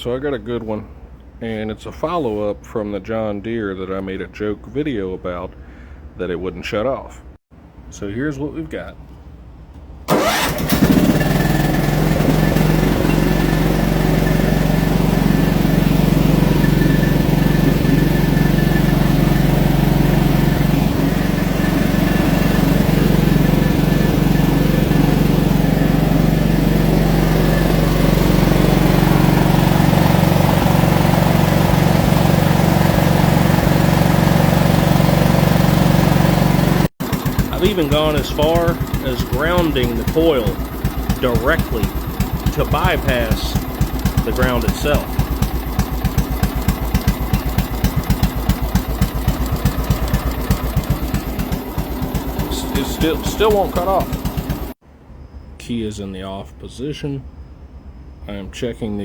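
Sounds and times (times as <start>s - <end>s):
mower engine starting and running: 10.0s - 54.8s.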